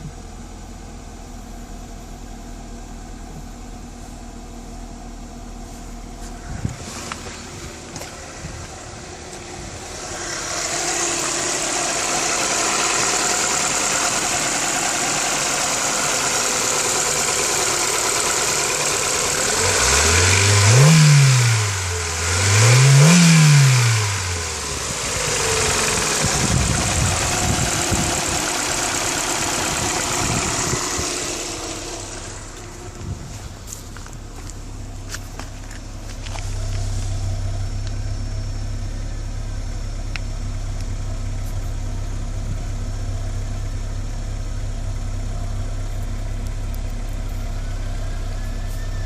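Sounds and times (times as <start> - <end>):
car engine starting and idling: 0.0 - 49.0
car engine revving: 5.8 - 41.6.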